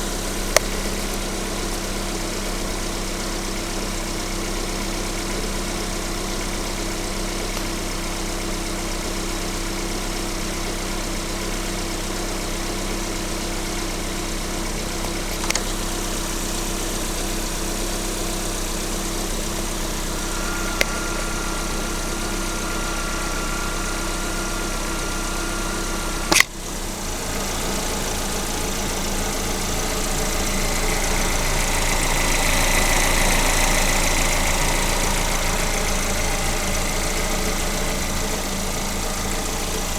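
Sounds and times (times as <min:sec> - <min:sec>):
car engine idling: 0:00.0 - 0:39.9
sharp clicks: 0:26.3 - 0:26.6.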